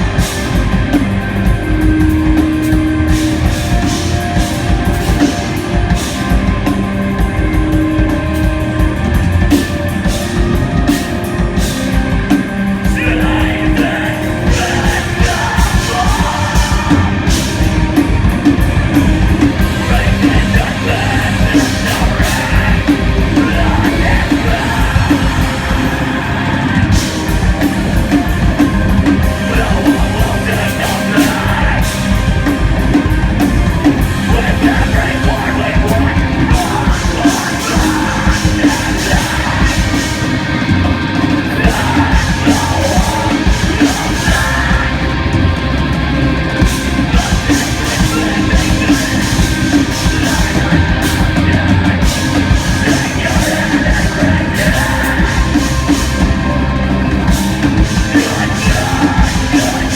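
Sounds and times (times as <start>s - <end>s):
drums: 0.0s - 59.9s
live rock band playing: 0.0s - 59.9s
shouted vocals: 33.9s - 45.7s, 46.8s - 59.9s.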